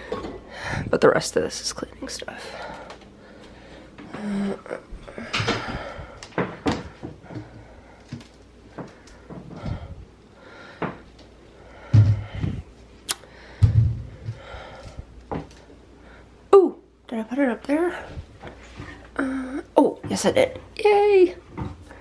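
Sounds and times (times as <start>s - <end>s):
heavy thumps: 11.8s - 12.6s, 13.5s - 14.6s.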